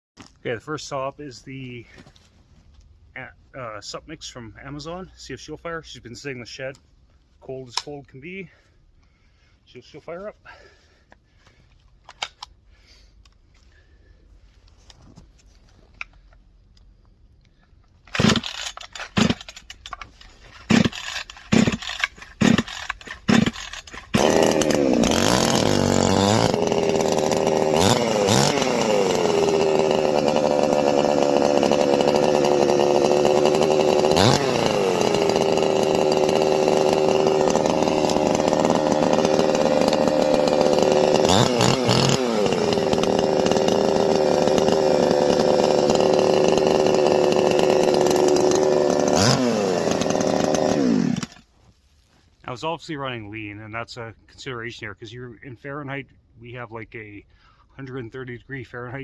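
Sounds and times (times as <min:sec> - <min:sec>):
chainsaw pull-cord pulls: 0:11.9 - 0:12.6, 0:15.9 - 0:51.5
chainsaw throttle blips: 0:18.1 - 0:20.0, 0:20.6 - 0:51.5
chainsaw engine running: 0:18.1 - 0:51.5.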